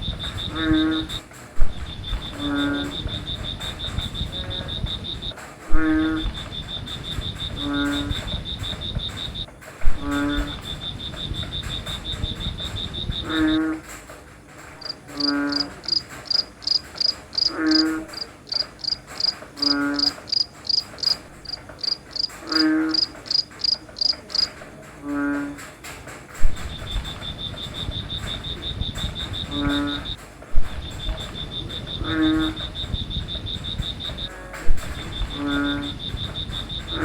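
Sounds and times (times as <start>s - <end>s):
frog croaking: 0.0s - 13.9s, 14.8s - 25.6s, 26.4s - 37.0s
crickets: 0.0s - 37.0s
fast high insect trill: 14.8s - 24.6s, 26.6s - 37.0s.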